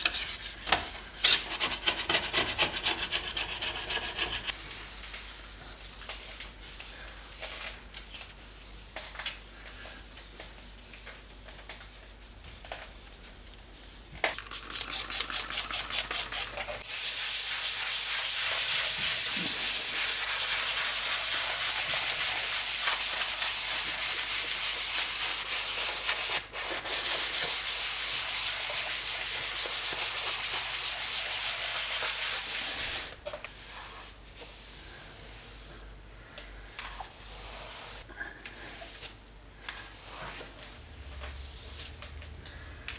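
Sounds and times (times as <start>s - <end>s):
scrubbing a surface by hand: 1.5s - 4.6s, 14.3s - 35.9s.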